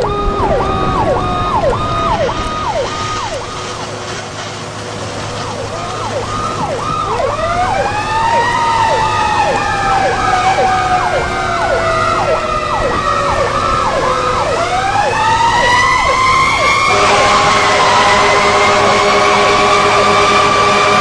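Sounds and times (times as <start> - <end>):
siren yelp: 0.0 - 4.4, 5.1 - 21.0
siren wail: 0.0 - 21.0
horn-like chord: 16.9 - 21.0.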